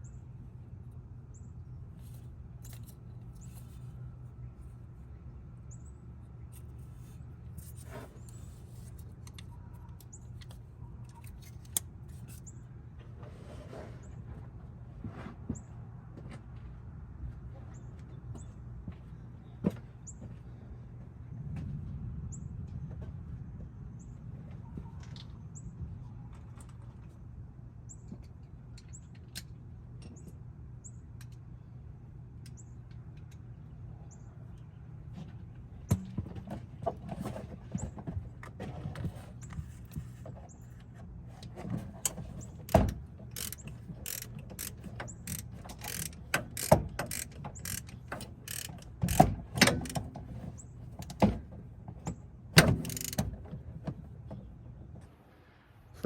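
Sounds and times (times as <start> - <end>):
ratchet wrench clicking: 42.7 - 50.0, 52.8 - 53.2.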